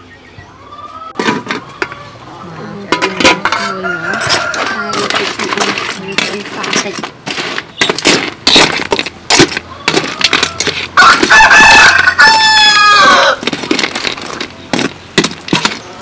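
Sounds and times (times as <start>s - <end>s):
rooster crowing: 3.6s - 5.1s, 9.7s - 13.4s.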